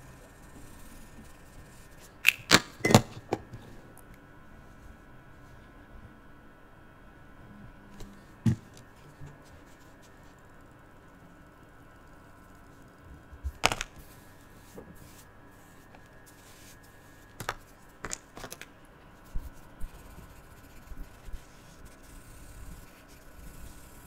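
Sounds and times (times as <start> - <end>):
marker rubbing on paper: 19.3 - 24.0.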